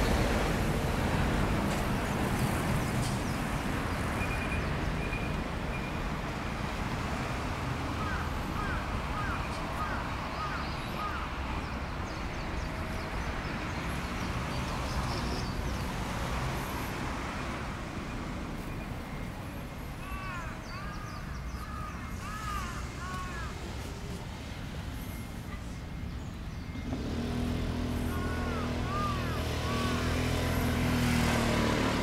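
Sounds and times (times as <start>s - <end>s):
bird calls: 8.0s - 15.8s, 20.0s - 23.7s, 27.9s - 30.2s.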